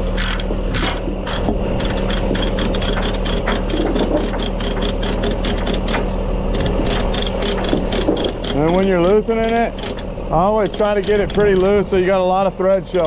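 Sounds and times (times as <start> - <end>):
ratchet chain binder clicking: 0.0 - 13.0
truck engine idling: 0.0 - 13.0.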